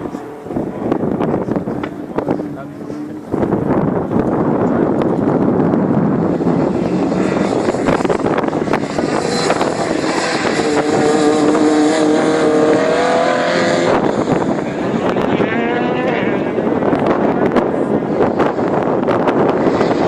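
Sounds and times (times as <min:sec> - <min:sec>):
car engine revving hard: 0:05.6 - 0:20.0.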